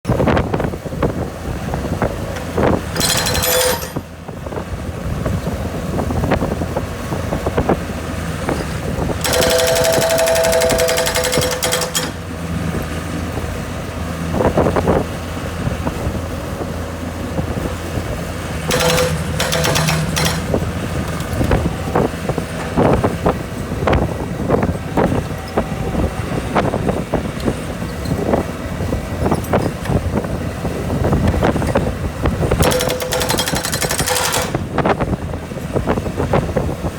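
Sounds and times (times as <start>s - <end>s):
skid steer engine running: 0.1s - 36.9s
hydraulic breaker hammering concrete: 2.4s - 4.1s, 8.4s - 12.4s, 18.5s - 24.0s, 31.3s - 35.1s.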